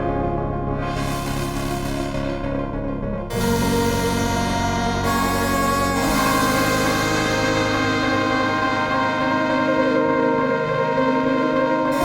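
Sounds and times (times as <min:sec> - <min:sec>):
synthesizer ambient pad chord: 0:00.0 - 0:12.0.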